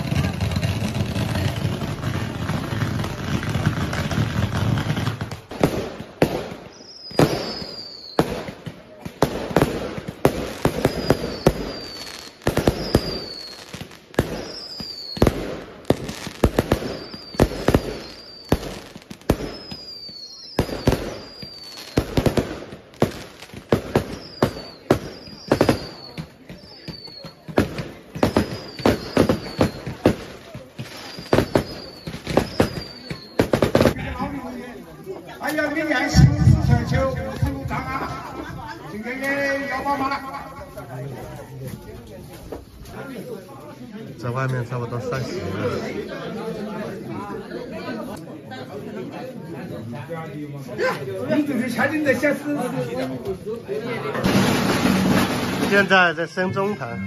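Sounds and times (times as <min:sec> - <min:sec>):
fireworks bangs: 0:00.0 - 0:43.8, 0:51.3 - 0:57.0
falling firework whistles: 0:00.1 - 0:38.9.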